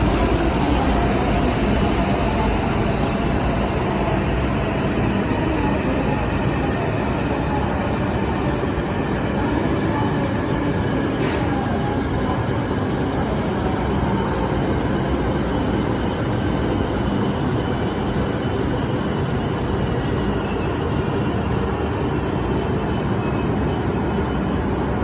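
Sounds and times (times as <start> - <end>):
train rolling past with rumble: 0.0 - 25.0
faint high wheel squeal: 17.7 - 25.0.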